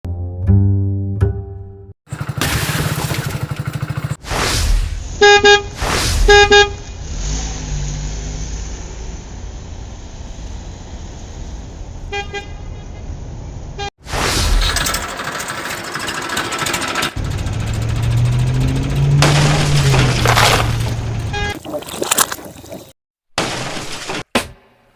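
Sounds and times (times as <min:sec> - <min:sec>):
whooshes: 0:04.2 - 0:08.1
short horn toots: 0:05.2 - 0:06.9.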